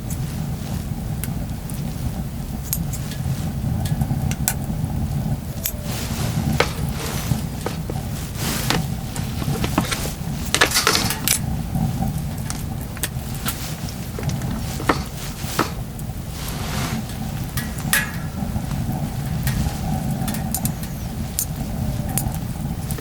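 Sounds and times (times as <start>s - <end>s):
dishes clinking and knocking: 6.4s - 11.3s, 14.2s - 15.8s.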